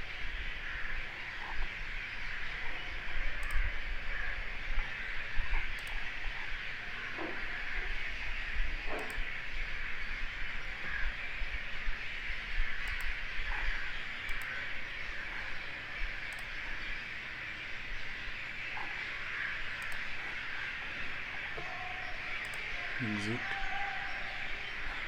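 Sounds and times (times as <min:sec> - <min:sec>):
computer mouse clicks: 0:03.4 - 0:03.8, 0:05.6 - 0:06.1, 0:08.9 - 0:09.3, 0:12.8 - 0:14.7, 0:16.2 - 0:16.6, 0:18.8 - 0:20.4, 0:22.3 - 0:23.7.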